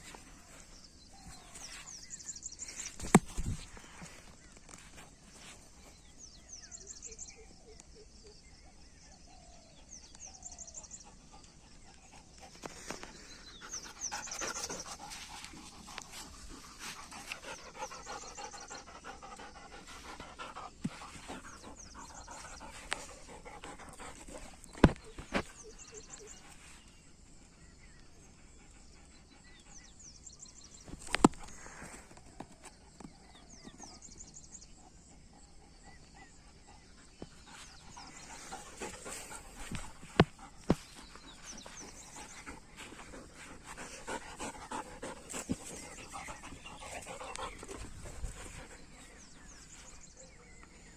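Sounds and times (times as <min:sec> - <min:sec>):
dog panting hard: 0:12.2 - 0:24.6, 0:36.6 - 0:49.5.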